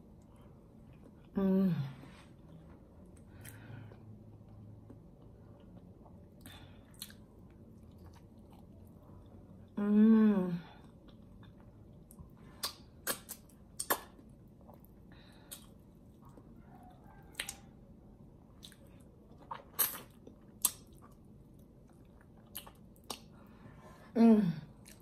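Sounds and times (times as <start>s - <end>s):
chewing: 2.2s - 9.6s, 10.9s - 17.8s, 18.5s - 23.4s
wet mouth clicks and smacks: 12.6s - 14.2s, 19.5s - 21.1s, 22.5s - 23.3s.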